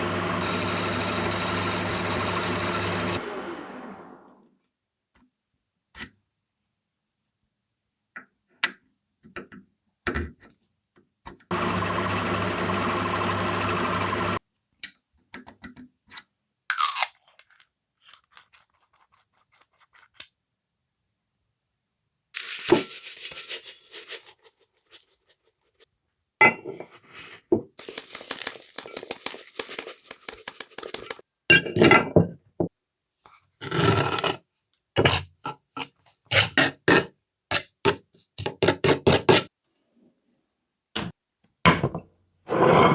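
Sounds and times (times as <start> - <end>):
machine running: 0.0 - 4.1, 11.5 - 14.4.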